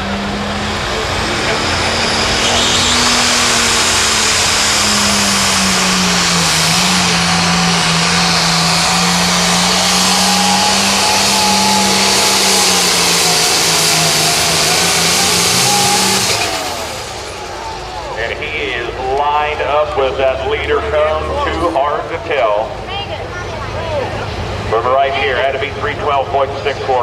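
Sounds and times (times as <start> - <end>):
diesel engine at full throttle: 0.0 - 27.0.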